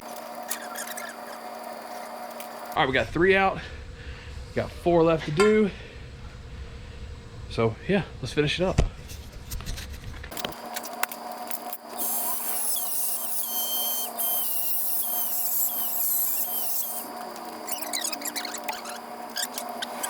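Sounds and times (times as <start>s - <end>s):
rotary tool grinding steel: 0.1s - 2.5s, 11.5s - 20.0s.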